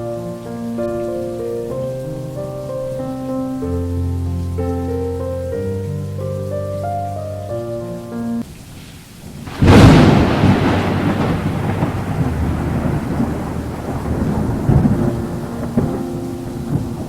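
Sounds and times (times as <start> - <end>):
steady rain: 0.0 - 17.0
thunder rumbling: 8.4 - 17.0.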